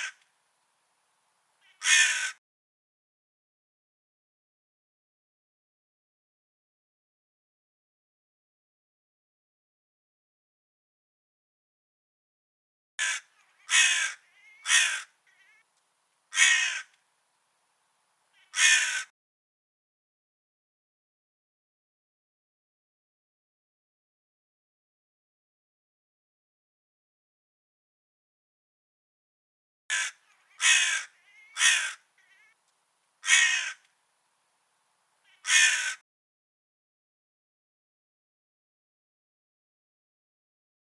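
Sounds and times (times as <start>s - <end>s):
crow cawing: 1.6s - 2.4s, 13.0s - 15.6s, 16.3s - 17.0s, 18.4s - 19.1s, 29.9s - 32.6s, 33.2s - 33.9s, 35.3s - 36.0s.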